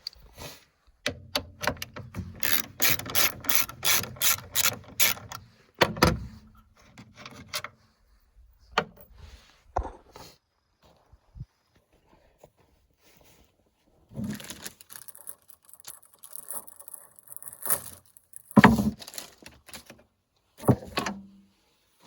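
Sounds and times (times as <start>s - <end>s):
hand ratchet clicking: 1.6s - 5.4s.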